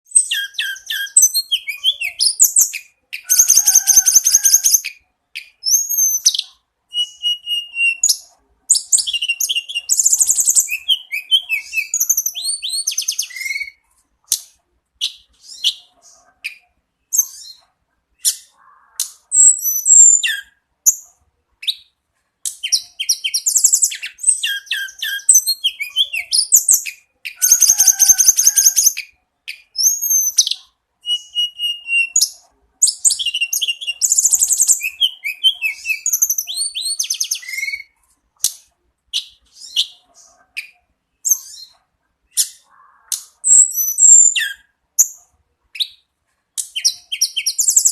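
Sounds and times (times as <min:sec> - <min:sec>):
bird singing trills: 0:00.1 - 0:13.8, 0:22.5 - 0:38.0, 0:46.6 - 0:47.9.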